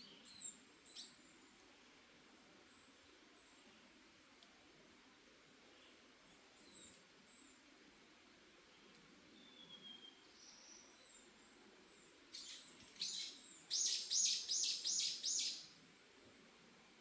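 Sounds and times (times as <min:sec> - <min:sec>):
faint whistled bird calls: 0:00.0 - 0:01.2, 0:09.4 - 0:11.2, 0:12.3 - 0:15.7.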